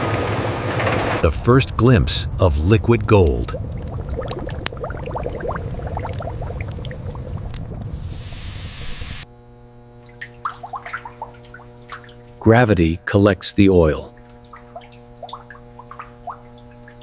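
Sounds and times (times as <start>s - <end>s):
low machine rumble: 0.0s - 13.1s
steady hum: 1.2s - 17.0s
oil dripping and trickling: 2.9s - 8.8s, 10.0s - 12.4s, 14.2s - 17.0s.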